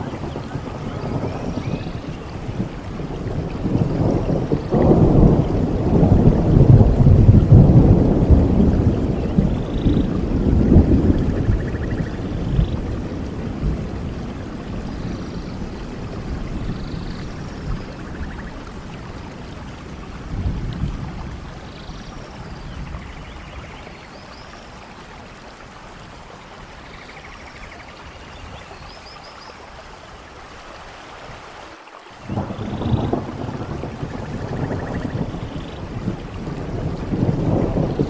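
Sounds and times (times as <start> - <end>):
rolling thunder: 0.0 - 23.9, 32.2 - 38.0
steady rain: 0.0 - 38.0.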